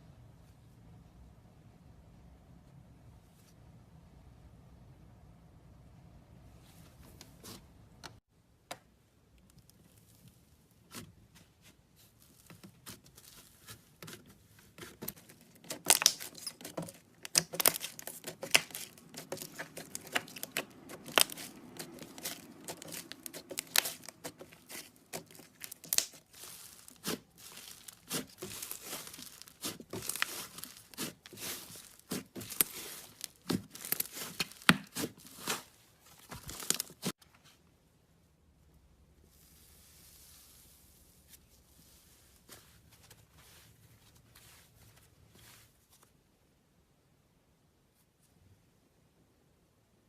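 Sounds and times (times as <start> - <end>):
slime wet crackles and pops: 15.7 - 16.5, 17.2 - 35.6.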